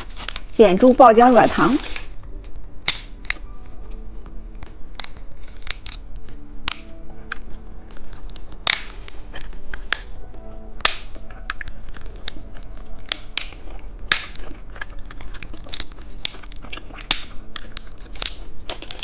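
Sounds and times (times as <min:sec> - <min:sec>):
chewing gummy candy: 0:11.3 - 0:19.0.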